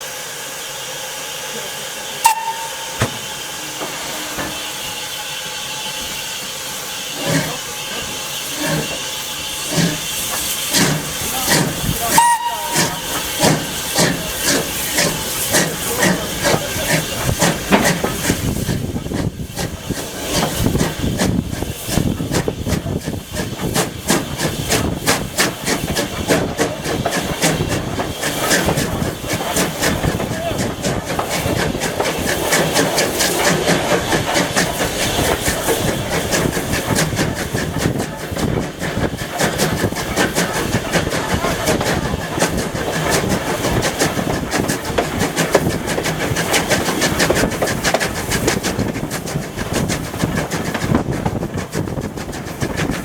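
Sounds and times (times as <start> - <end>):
steam locomotive hissing: 0.0 - 53.0
locomotive exhaust beats: 1.5 - 53.0
short high tones: 2.2 - 3.3.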